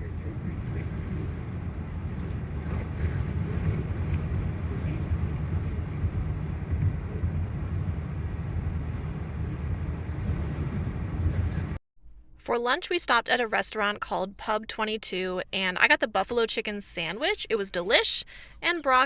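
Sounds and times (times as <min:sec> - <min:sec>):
vehicle rumble: 0:00.0 - 0:11.8
wind noise on microphone: 0:00.0 - 0:11.8.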